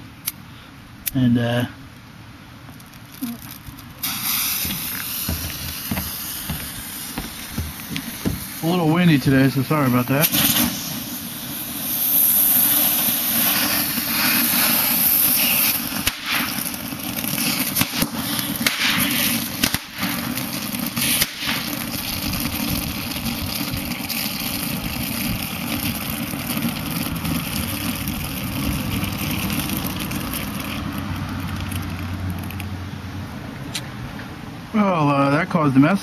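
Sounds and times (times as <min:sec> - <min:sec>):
fireworks crackling pops: 0:01.9 - 0:32.8
fireworks hissing sparks: 0:02.7 - 0:32.7
wind rumble on microphone: 0:22.0 - 0:24.0.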